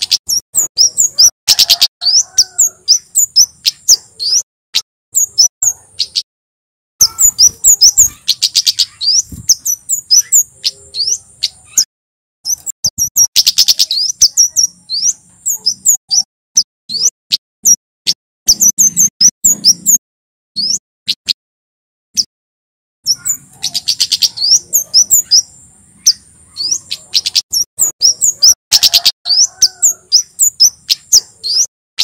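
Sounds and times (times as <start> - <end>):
bird chips and trills: 0.0 - 6.3, 7.0 - 20.0, 20.6 - 21.4, 23.0 - 31.7.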